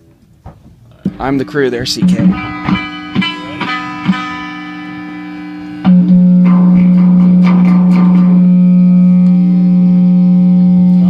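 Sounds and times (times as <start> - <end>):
guitar music: 0.9 - 11.0.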